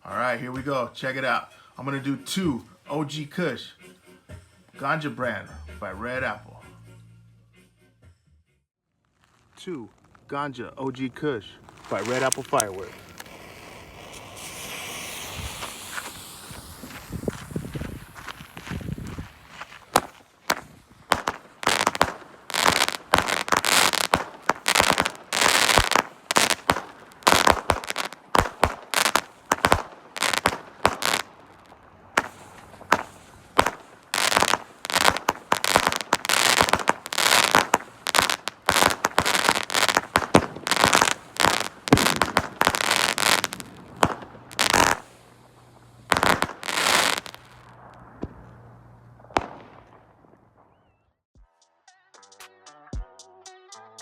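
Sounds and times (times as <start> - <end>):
fireworks launching and bursting: 9.2 - 51.0.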